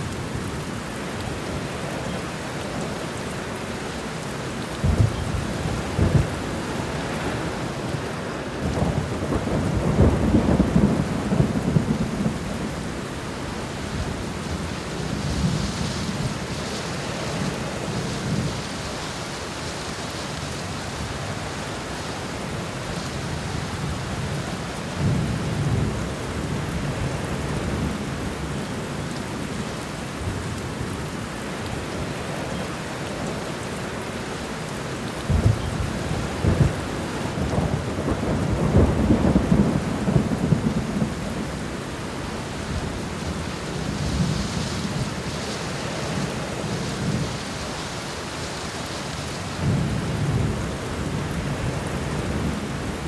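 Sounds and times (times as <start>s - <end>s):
heavy rain: 0.0s - 53.0s
rolling thunder: 4.8s - 7.9s, 8.6s - 13.0s, 35.3s - 41.8s.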